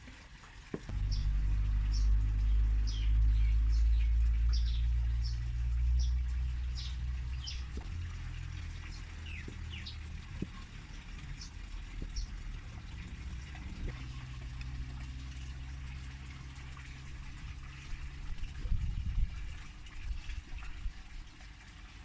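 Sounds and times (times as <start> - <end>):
small birds chirping: 0.9 - 15.2
loud low rumble: 0.9 - 20.0.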